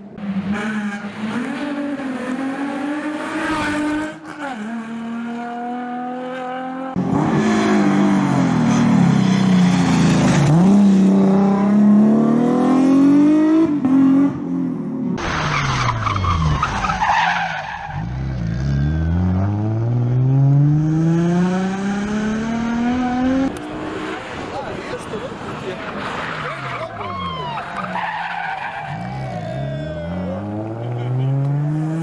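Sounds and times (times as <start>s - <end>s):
tyre squeal and skidding: 8.6s - 10.7s, 15.2s - 18.9s, 24.0s - 31.0s
car engine revving hard: 30.1s - 32.0s.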